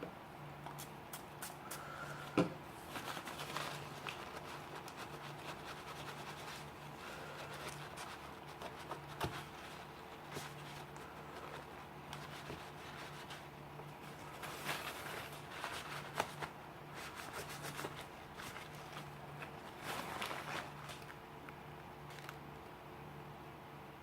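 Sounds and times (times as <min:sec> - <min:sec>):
low steady hum: 0:00.0 - 0:24.0
scratchy rubbing: 0:02.8 - 0:21.0.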